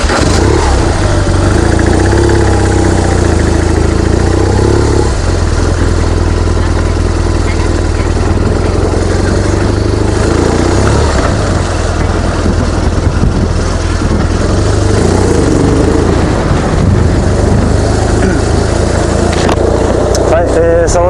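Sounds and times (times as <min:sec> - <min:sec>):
motorcycle engine running: 0:00.0 - 0:21.0
wind rush over microphone: 0:11.3 - 0:20.4.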